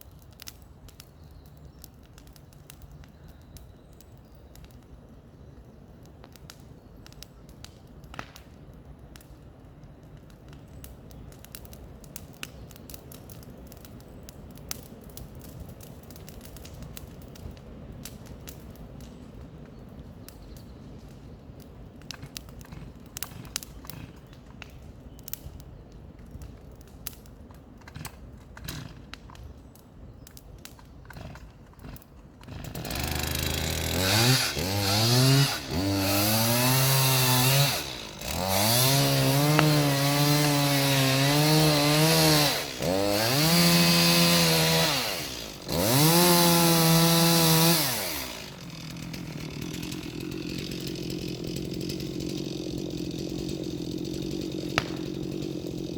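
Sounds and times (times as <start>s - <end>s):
chainsaw revving and idling: 22.0s - 24.7s, 27.9s - 29.0s, 31.1s - 55.9s.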